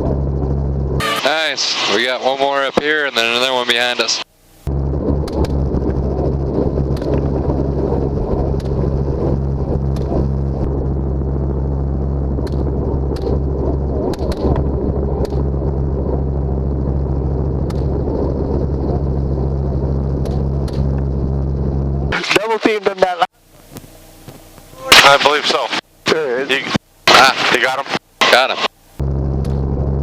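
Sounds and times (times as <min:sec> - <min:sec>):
helicopter engine and rotor drone: 0:00.0 - 0:23.2.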